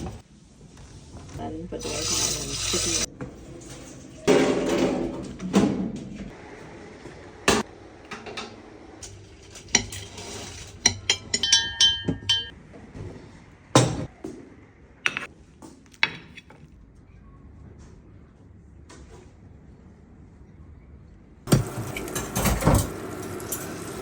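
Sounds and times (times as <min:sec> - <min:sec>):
dishes and glassware clinking: 0:08.2 - 0:12.6, 0:15.1 - 0:15.3.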